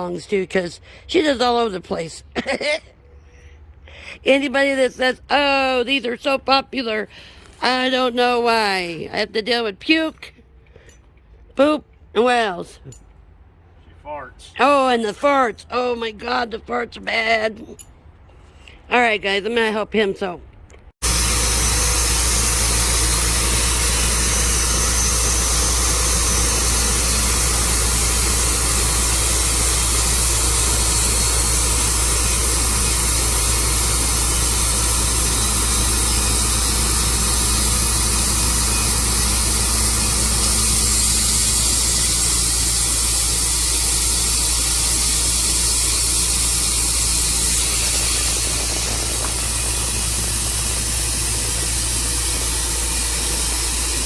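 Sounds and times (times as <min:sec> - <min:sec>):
sawmill sawing a log: 0:21.0 - 0:54.0.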